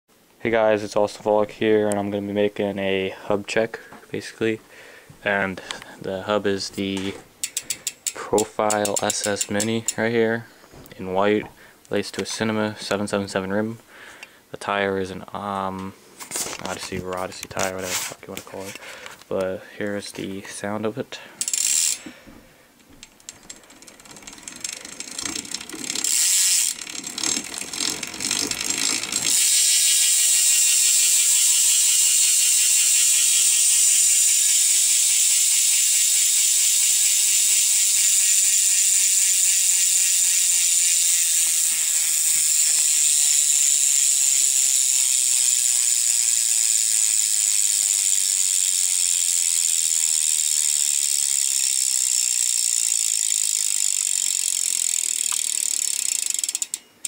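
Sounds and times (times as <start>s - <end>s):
bicycle hub pawls clicking: 7.4s - 10.1s, 21.4s - 22.2s, 22.8s - 56.8s.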